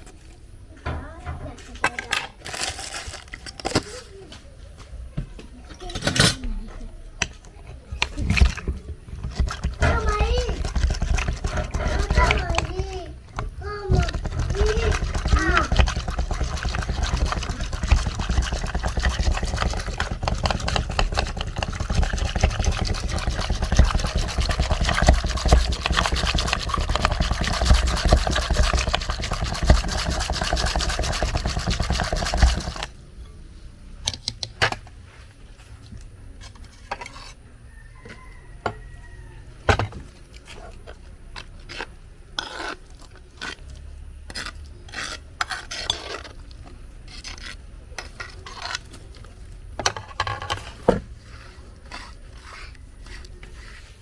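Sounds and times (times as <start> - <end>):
food scraping and rubbing: 0.0 - 4.2, 5.7 - 33.1, 34.7 - 54.0
kitchen utensils clicking: 5.8 - 6.5.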